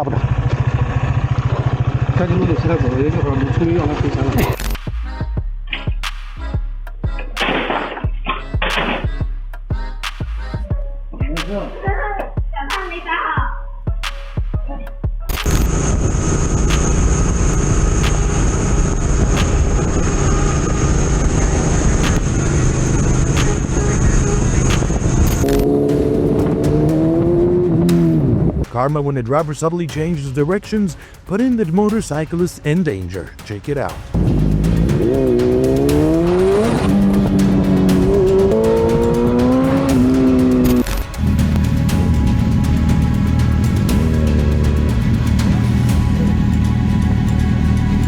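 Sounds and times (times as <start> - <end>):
road and wind noise: 0.0 - 4.5, 15.4 - 28.7, 34.2 - 48.0
vehicle engine running: 0.0 - 4.8, 15.3 - 28.6, 34.2 - 48.0
music beat: 4.4 - 48.0
high whine: 15.3 - 28.6, 34.2 - 48.0.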